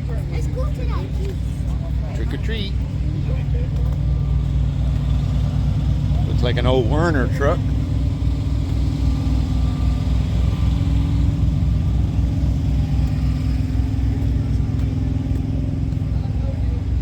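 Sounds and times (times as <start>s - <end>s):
truck diesel engine idling: 0.0s - 17.0s.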